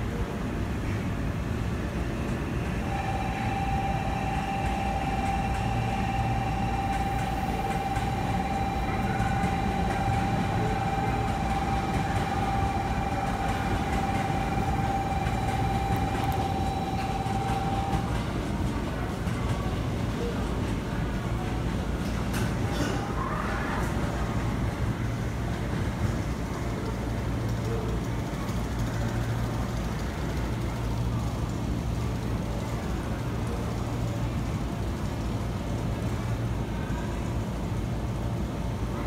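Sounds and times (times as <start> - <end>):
high-pitched tone: 2.9 - 18.3.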